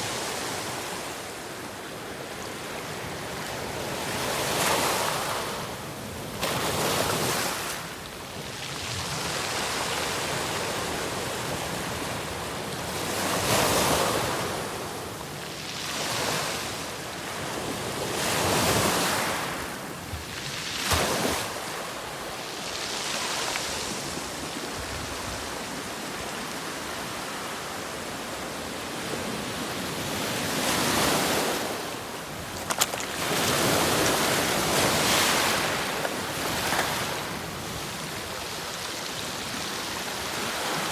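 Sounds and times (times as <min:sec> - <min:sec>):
waves breaking: 0:29.9 - 0:40.9.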